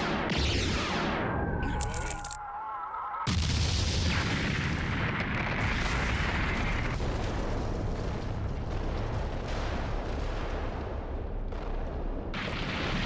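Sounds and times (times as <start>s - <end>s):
deep rumbling blast: 3.3s - 13.0s.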